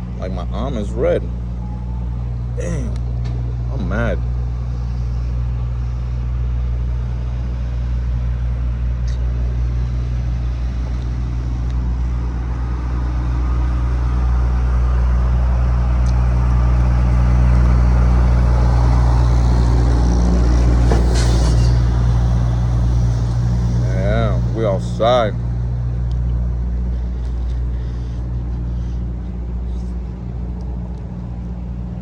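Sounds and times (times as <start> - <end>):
car engine idling: 21.8 - 32.0.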